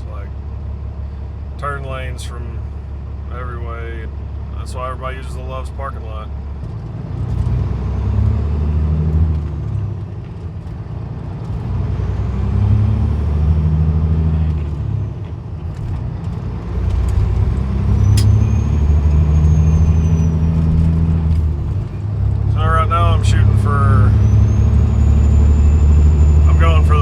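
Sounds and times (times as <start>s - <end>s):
diesel truck engine accelerating: 0.0s - 27.0s
sharp click: 18.0s - 18.4s
turbo whistle: 18.0s - 20.6s, 24.1s - 26.6s.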